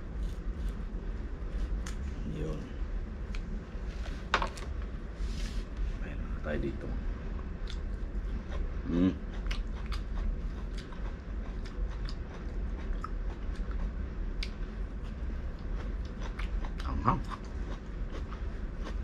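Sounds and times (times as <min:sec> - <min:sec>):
person biting and chewing: 0:07.6 - 0:14.6.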